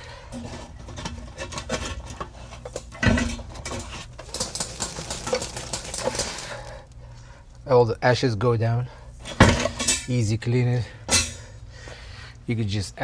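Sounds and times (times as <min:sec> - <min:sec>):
charcoal rattling in metal basket: 0:00.3 - 0:07.0.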